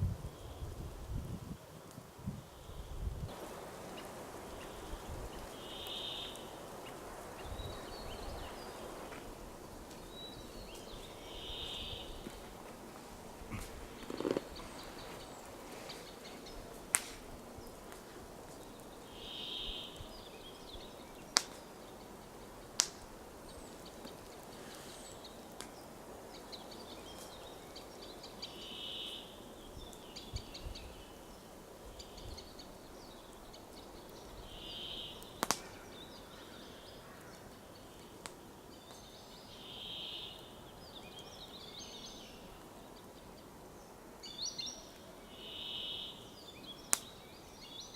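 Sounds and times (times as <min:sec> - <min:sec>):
background hiss: 0:00.0 - 0:47.9
faint bird chirping: 0:02.5 - 0:09.4, 0:10.0 - 0:12.3, 0:18.6 - 0:22.6, 0:23.5 - 0:47.9
bird song phrase: 0:05.6 - 0:06.6, 0:18.7 - 0:21.3, 0:32.0 - 0:43.4, 0:44.2 - 0:47.9.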